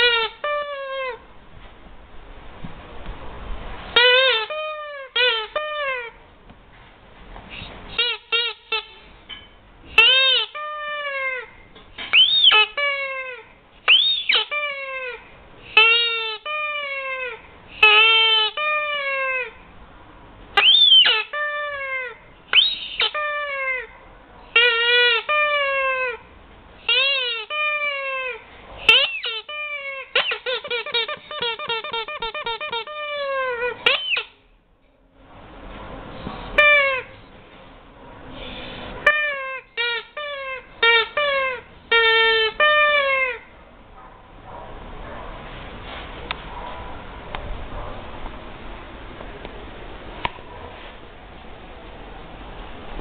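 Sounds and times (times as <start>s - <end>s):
rubber squeaky toy squeaking: 0.0s - 1.2s, 4.0s - 6.2s, 7.9s - 9.0s, 9.9s - 19.6s, 20.6s - 34.5s, 36.6s - 37.2s, 39.0s - 43.5s.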